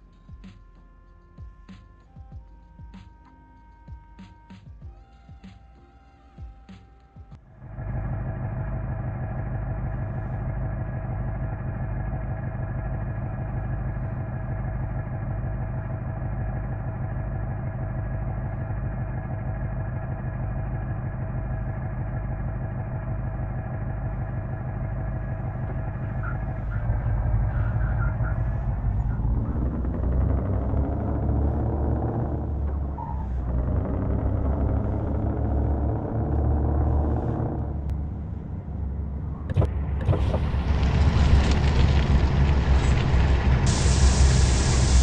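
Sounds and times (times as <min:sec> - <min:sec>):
truck engine revving: 0:07.5 - 0:45.0.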